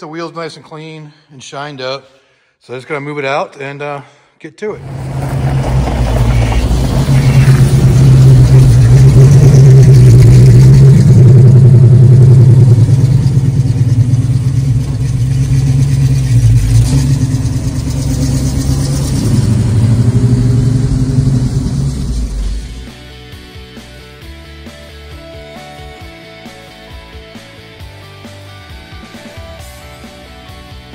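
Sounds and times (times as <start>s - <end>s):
car engine rumbling: 4.8s - 23.1s.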